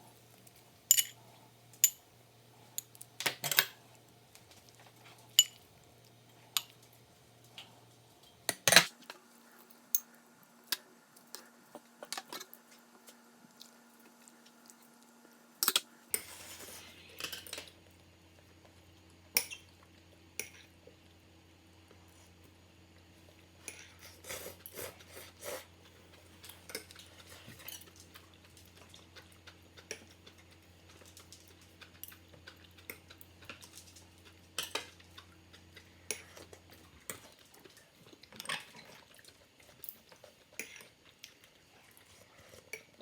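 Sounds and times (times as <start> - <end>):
utensils clinking on dishes: 0.9 - 1.2, 5.4 - 5.6.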